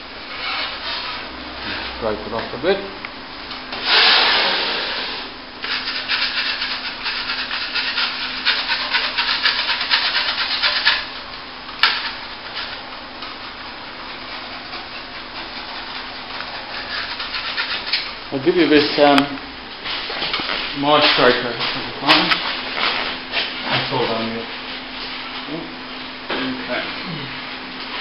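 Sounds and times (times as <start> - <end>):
metal scraper scraping plaster: 5.7 - 11.1, 14.1 - 18.0.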